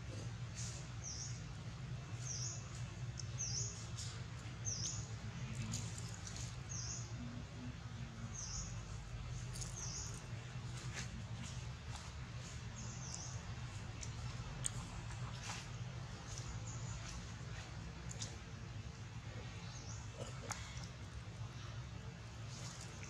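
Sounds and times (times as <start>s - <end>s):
low hum: 0.0s - 23.0s
bird chirping: 2.2s - 7.4s.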